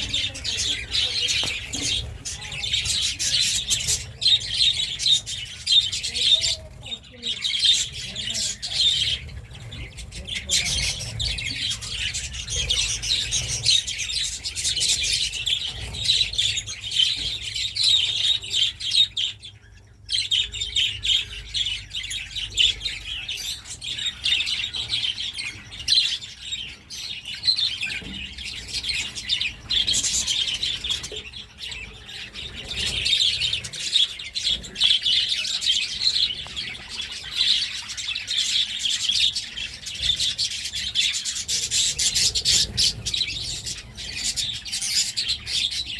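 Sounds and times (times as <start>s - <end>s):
budgerigars chattering and chirping: 0.0s - 45.9s.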